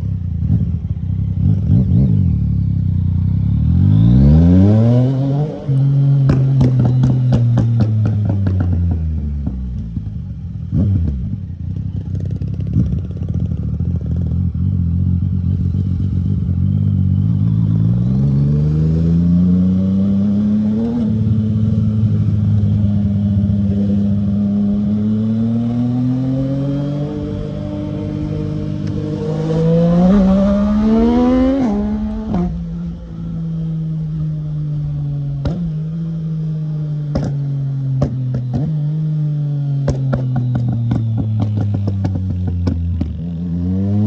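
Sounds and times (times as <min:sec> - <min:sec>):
motorcycle engine revving: 0:00.0 - 0:44.0
exhaust crackles and pops: 0:37.1 - 0:37.4, 0:39.8 - 0:43.3.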